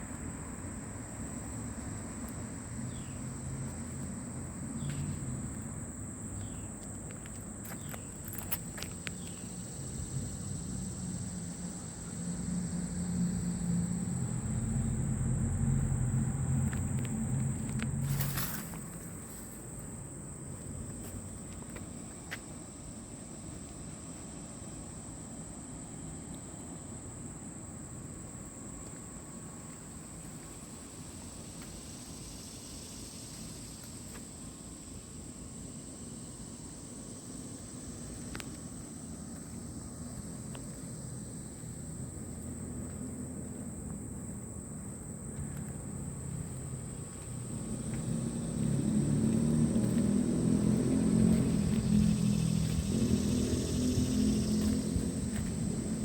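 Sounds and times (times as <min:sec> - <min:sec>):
insect chorus trilling: 0:00.0 - 0:56.0
low steady rumble: 0:09.2 - 0:21.5, 0:39.6 - 0:56.0.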